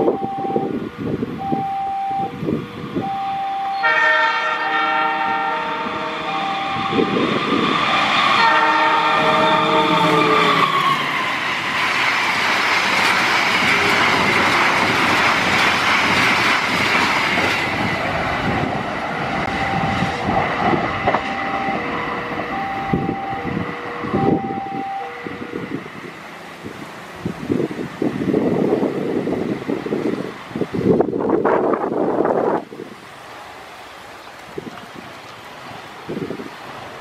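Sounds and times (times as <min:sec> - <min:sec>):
rush of passing train coaches: 0:00.0 - 0:37.0
repeating two-note tone: 0:03.0 - 0:03.9, 0:06.2 - 0:07.3, 0:19.5 - 0:20.3, 0:21.2 - 0:25.8
locomotive horn: 0:03.2 - 0:11.2, 0:19.5 - 0:25.9.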